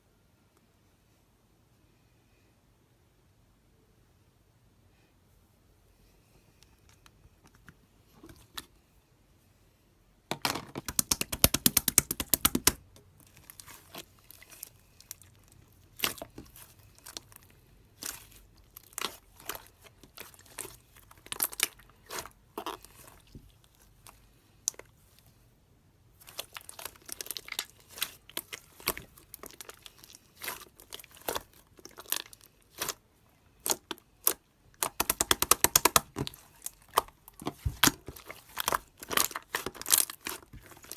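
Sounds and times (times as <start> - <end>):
slime squished by hand popping: 10.8 - 12.8, 33.6 - 40.9.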